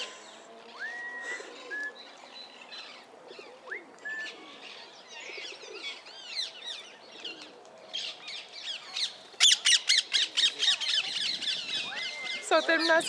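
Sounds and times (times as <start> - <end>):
birds whistling: 0.0 - 13.0.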